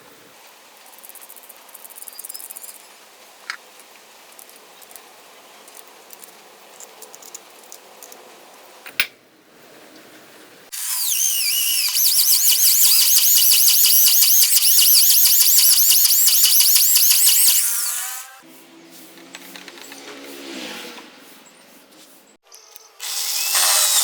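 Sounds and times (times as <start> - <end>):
power drill whining: 10.7 - 18.4, 23.0 - 24.0.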